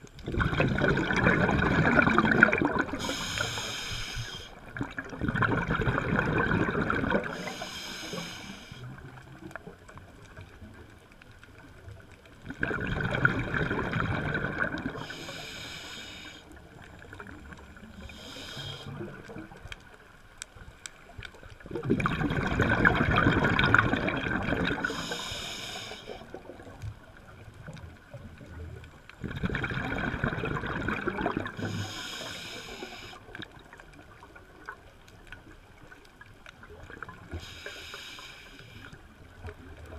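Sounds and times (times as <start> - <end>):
bubbling underwater exhalations: 0.2 - 3.5, 4.7 - 7.6, 12.4 - 15.2, 21.7 - 25.0, 29.2 - 31.8
regulator hissing inhalation: 3.0 - 4.6, 7.3 - 8.9, 15.0 - 16.5, 18.0 - 19.0, 24.8 - 26.2, 31.6 - 33.2, 37.4 - 38.9.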